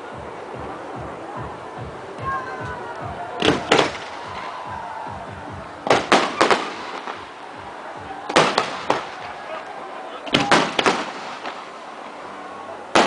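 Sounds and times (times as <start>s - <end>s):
faint background music: 0.0s - 13.0s
firecrackers banging: 1.9s - 13.0s.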